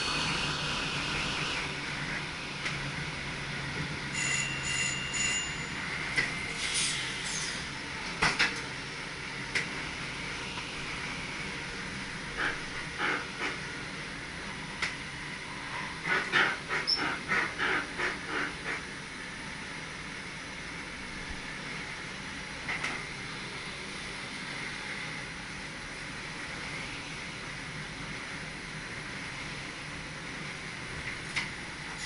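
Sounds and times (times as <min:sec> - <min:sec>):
electric train running noise: 0:00.0 - 0:32.0
wheels clacking over rail joints: 0:15.7 - 0:18.9.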